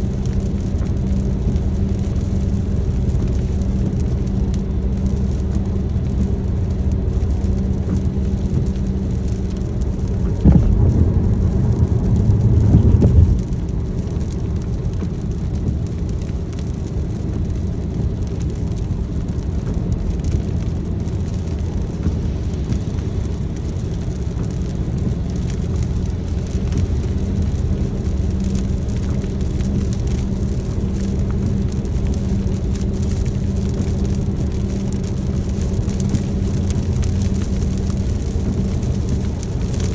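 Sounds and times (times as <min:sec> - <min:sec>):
loud low rumble: 0:00.0 - 0:39.9
rain hissing: 0:00.0 - 0:39.9
engine and tyre drone: 0:07.4 - 0:17.0.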